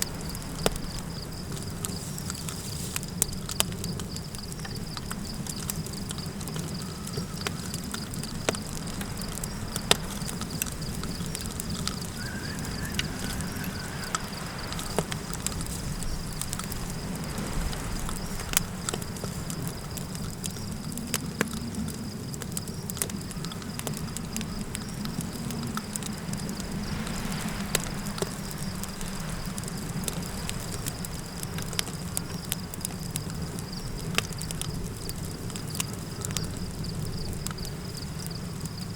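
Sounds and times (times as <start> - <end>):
campfire crackling and popping: 0.0 - 38.9
crickets chirping: 0.0 - 38.9
low wind rumble: 0.0 - 38.9
faint high call: 12.0 - 14.9.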